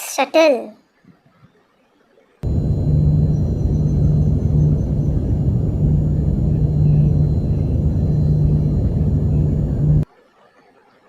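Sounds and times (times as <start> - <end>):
rocket engines deep rumble: 2.4 - 10.0.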